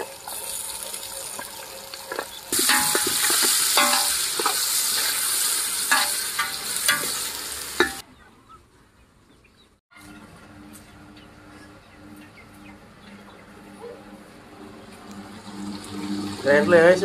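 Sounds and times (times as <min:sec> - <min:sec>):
vegetables sizzling in hot oil: 0:00.0 - 0:08.0
steel spatula scraping pot: 0:02.6 - 0:05.2.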